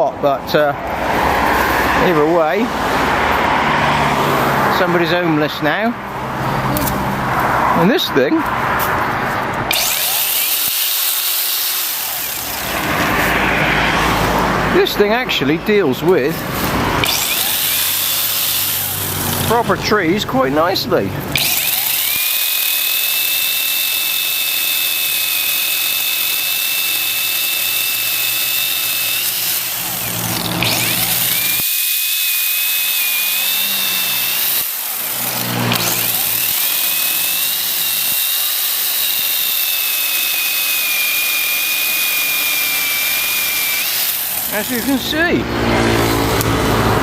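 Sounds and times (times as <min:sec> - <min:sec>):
chainsaw cutting wood: 0:08.7 - 0:14.9, 0:15.9 - 0:20.1, 0:20.7 - 0:47.0.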